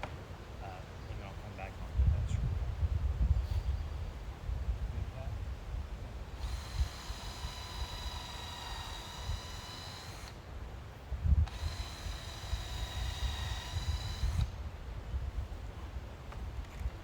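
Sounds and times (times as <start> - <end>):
wind rumble on microphone: 1.5 - 7.0, 11.1 - 11.8, 13.0 - 17.0
power drill whine: 6.3 - 10.5, 11.4 - 14.6.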